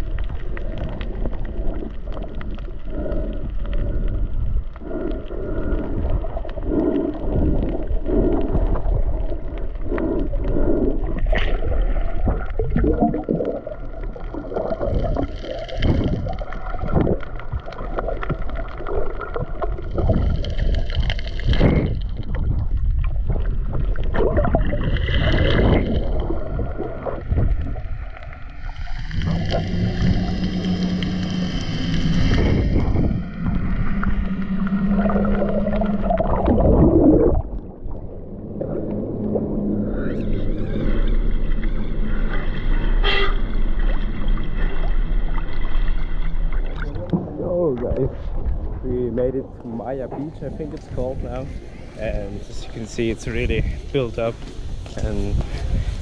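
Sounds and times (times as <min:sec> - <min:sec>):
boat engine rumbling: 0:00.0 - 0:56.0
water slapping and splashing: 0:00.0 - 0:56.0.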